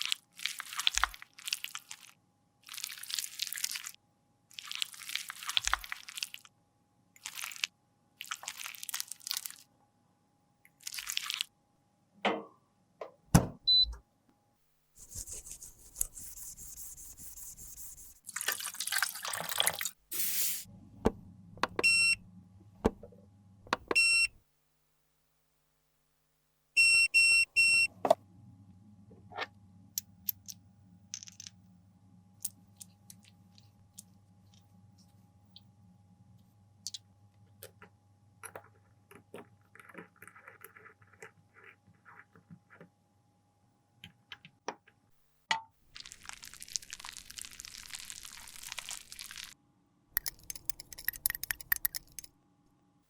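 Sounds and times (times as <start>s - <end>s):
hiss: 20.1s - 20.7s.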